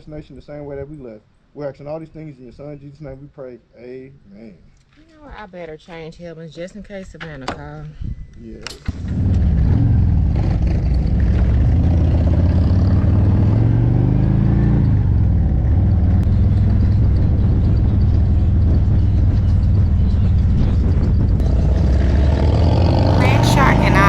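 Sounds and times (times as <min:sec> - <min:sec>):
motorcycle engine running: 0:14.9 - 0:24.0.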